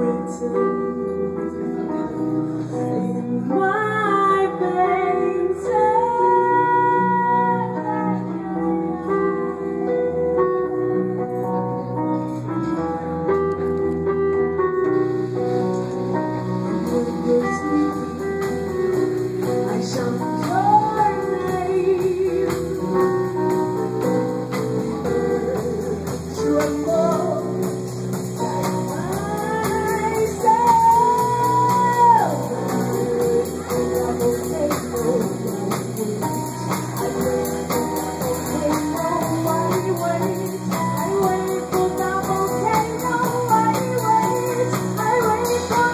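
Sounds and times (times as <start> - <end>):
drums: 0.0 - 45.9
guitar: 0.0 - 45.9.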